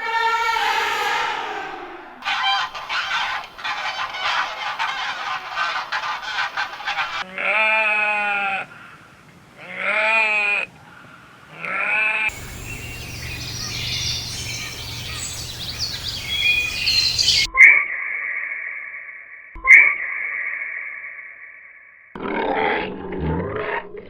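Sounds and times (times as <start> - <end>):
steady high tone: 0.0 - 2.2
low hum: 12.3 - 17.5
small birds chirping: 12.3 - 17.5.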